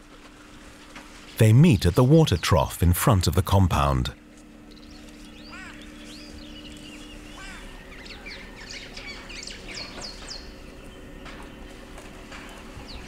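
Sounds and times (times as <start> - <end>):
faint low hum: 0.2 - 13.0
birds chirping: 1.4 - 11.8.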